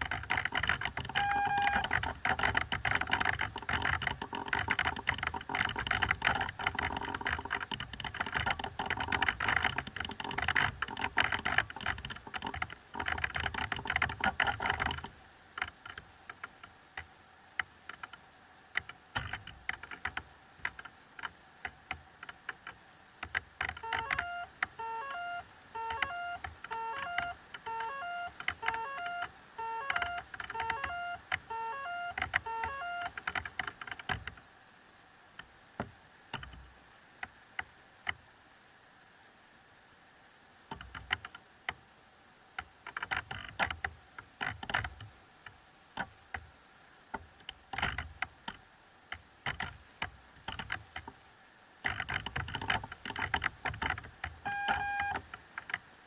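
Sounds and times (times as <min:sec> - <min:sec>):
electronic crackle and clicking: 0:00.0 - 0:18.2, 0:18.8 - 0:34.4, 0:51.8 - 0:55.8
steady electronic tones: 0:01.1 - 0:02.1, 0:23.8 - 0:33.2
short beeps: 0:01.2 - 0:01.8, 0:23.8 - 0:33.1, 0:54.5 - 0:55.2.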